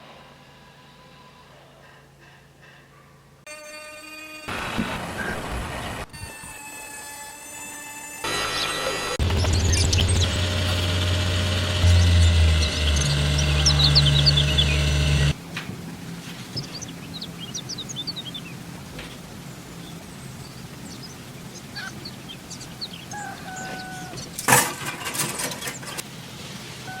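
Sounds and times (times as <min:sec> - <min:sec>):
loud machine hum: 0:07.3 - 0:21.7
birds chirping: 0:08.0 - 0:26.0.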